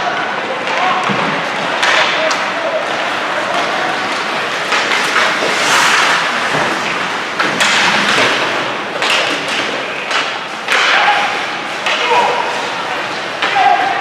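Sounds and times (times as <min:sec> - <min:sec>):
puck and sticks hitting boards: 0:00.0 - 0:14.0
rink noise: 0:01.6 - 0:14.0.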